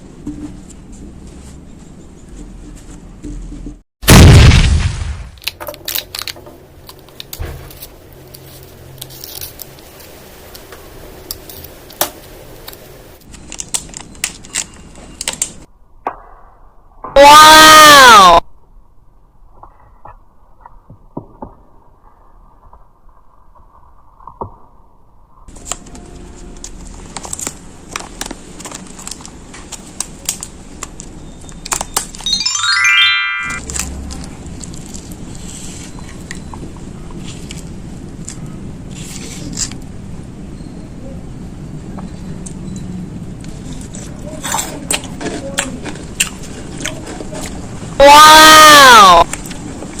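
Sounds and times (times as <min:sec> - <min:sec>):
loud burst: 0:04.0 - 0:05.4.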